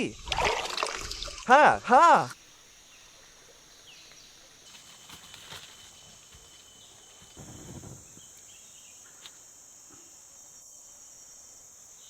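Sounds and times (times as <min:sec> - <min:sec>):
high-pitched insect chorus: 0:00.0 - 0:12.0
short rustle: 0:04.0 - 0:09.4.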